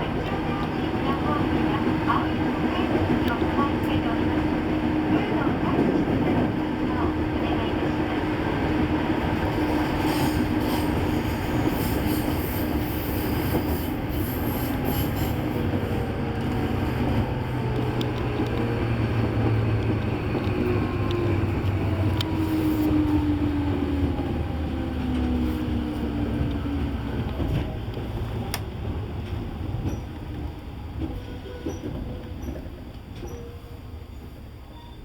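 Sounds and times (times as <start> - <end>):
electric train rumble: 0.0 - 35.0
sharp clicks from rails: 15.7 - 22.6, 25.0 - 33.4.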